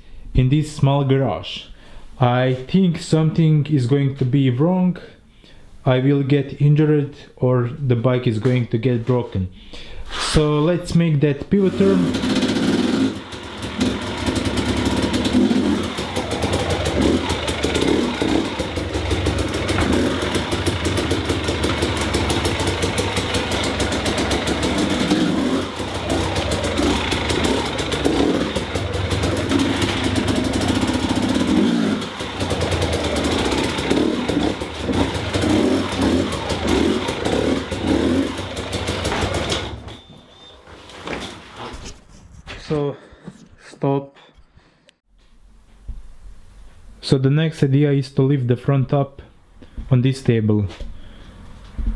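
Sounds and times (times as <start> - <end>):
dirt bike engine revving: 11.6 - 40.0.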